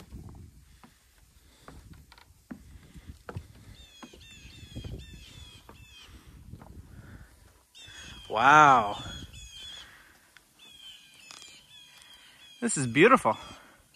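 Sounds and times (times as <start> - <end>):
footsteps on wooden boardwalk: 0.0 - 12.1
bird calling: 3.4 - 13.9.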